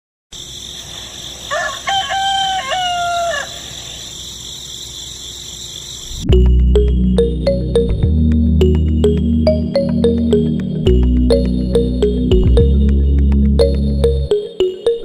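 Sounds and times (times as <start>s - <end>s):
outdoor background hiss: 0.3s - 6.3s
rooster crowing: 0.9s - 4.2s
loud music: 6.3s - 15.0s.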